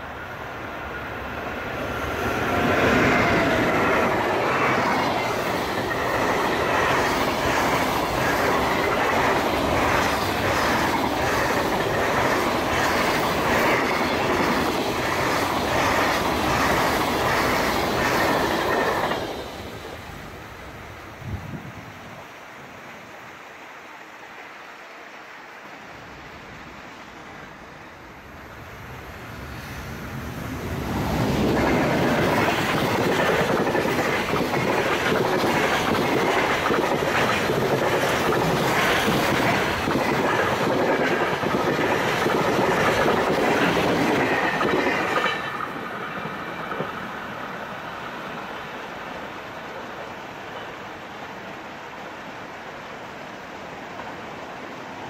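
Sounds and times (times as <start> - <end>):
train wheels clattering on rails: 2.0 - 19.8, 31.0 - 47.6.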